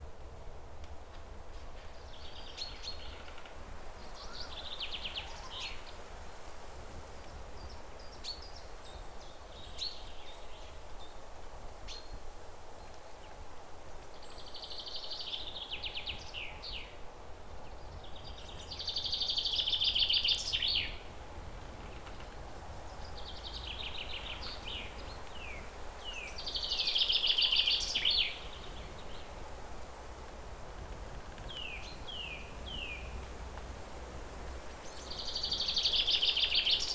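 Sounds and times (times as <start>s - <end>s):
songbirds singing trills: 2.0s - 6.0s, 14.1s - 17.0s, 17.6s - 29.5s, 31.3s - 33.3s, 34.8s - 36.9s.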